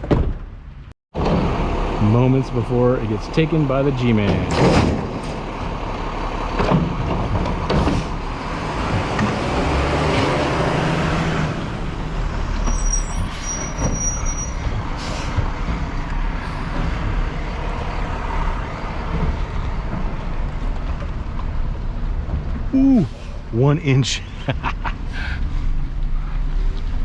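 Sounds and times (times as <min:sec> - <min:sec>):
diesel truck engine rumbling: 0:00.6 - 0:27.0
brief high squeal: 0:12.6 - 0:14.7.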